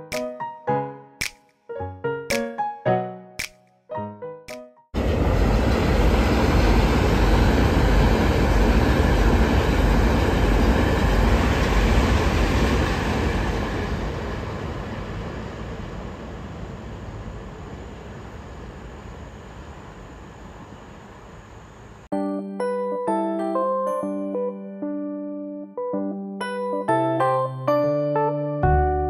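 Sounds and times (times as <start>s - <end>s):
train passing at speed: 5.0s - 22.1s.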